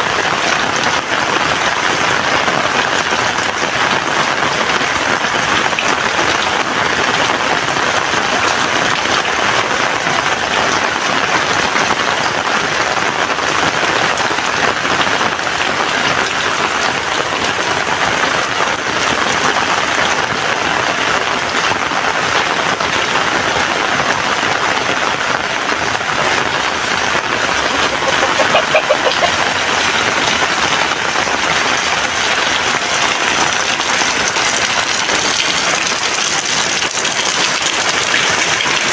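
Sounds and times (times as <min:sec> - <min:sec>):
heavy rain falling: 0:00.0 - 0:38.9
brief pitched sound: 0:27.4 - 0:29.5.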